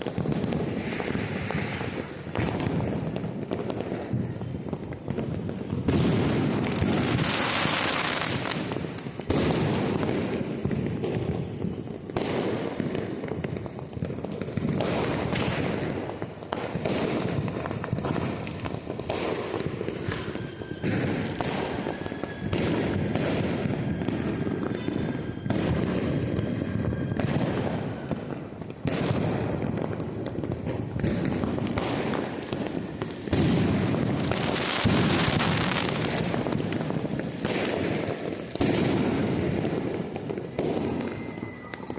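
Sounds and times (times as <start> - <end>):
firecrackers banging and crackling: 0.0 - 41.9
faint steady whistle: 19.9 - 28.6, 40.2 - 41.9.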